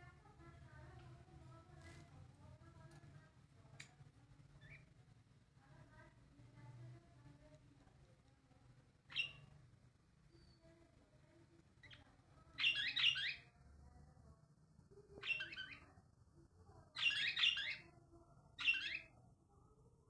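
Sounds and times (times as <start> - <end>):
bird chirping: 4.6 - 4.9, 9.1 - 9.6, 10.3 - 10.8, 11.8 - 13.6, 15.2 - 16.0, 17.0 - 17.9, 18.6 - 19.2.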